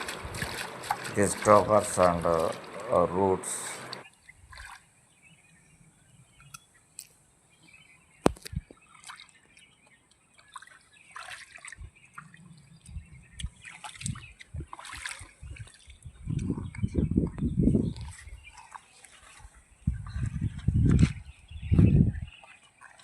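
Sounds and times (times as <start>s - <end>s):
water trickling and splashing: 0.0s - 5.8s, 8.2s - 23.0s.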